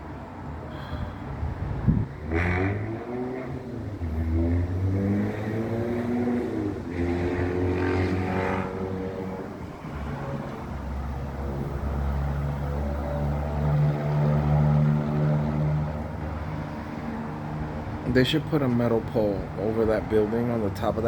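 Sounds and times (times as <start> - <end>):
vehicle passing rush: 0.0 - 21.0
vehicle engine accelerating: 1.7 - 18.2.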